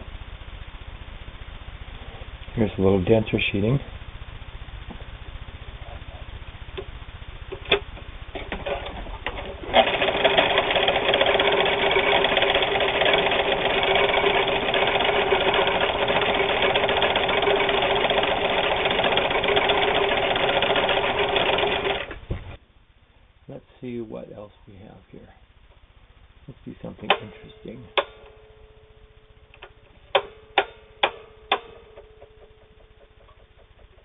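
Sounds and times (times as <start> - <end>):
sewing machine stitching: 8.4 - 22.2.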